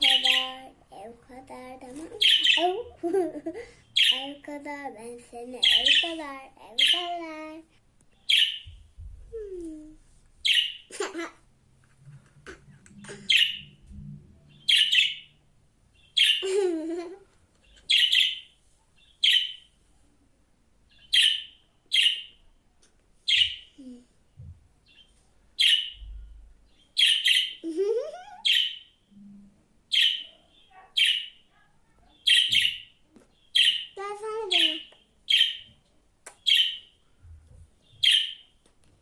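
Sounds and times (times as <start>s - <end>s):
budgerigar chirping: 0.0s - 0.6s, 2.2s - 2.8s, 3.9s - 4.3s, 5.6s - 6.2s, 8.3s - 8.8s, 10.4s - 10.9s, 13.3s - 13.8s, 14.6s - 15.3s, 16.0s - 16.4s, 17.6s - 19.7s, 20.9s - 22.4s, 23.3s - 23.7s, 25.6s - 26.0s, 27.0s - 27.6s, 28.4s - 28.9s, 29.9s - 31.4s, 32.2s - 34.0s, 34.6s - 35.7s, 36.4s - 36.9s, 37.9s - 38.5s.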